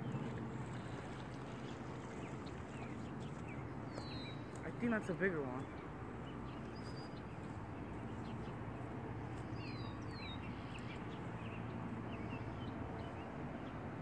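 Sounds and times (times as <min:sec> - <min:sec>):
bird chirps: 0:02.2 - 0:04.9.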